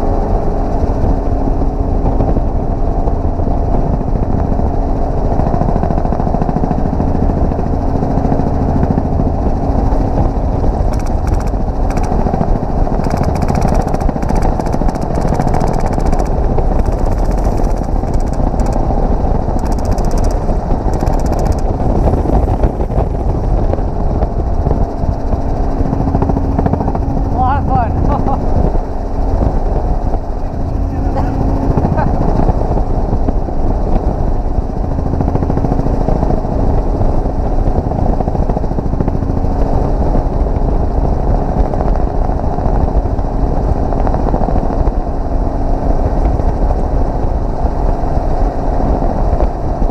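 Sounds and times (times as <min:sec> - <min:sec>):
helicopter rotor and engine: 0:00.0 - 0:49.9
airsoft gun full-auto fire: 0:10.9 - 0:12.2, 0:13.0 - 0:18.8, 0:19.6 - 0:21.7.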